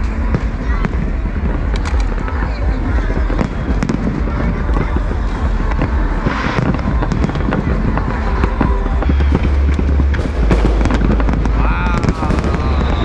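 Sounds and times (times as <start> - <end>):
fireworks crackling and popping: 9.0 - 13.0
low rumble of fireworks booms: 9.0 - 13.0.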